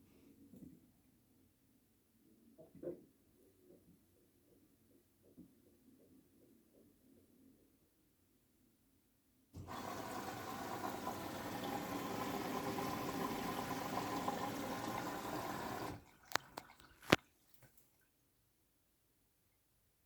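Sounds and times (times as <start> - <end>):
water rushing into washing machine: 9.6 - 17.2.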